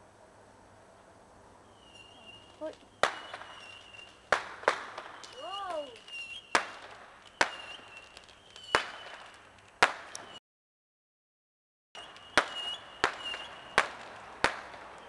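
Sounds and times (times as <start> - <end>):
faint fireworks crackling: 0.0 - 10.4, 12.0 - 15.0
fireworks bangs: 1.8 - 10.4, 12.0 - 15.0.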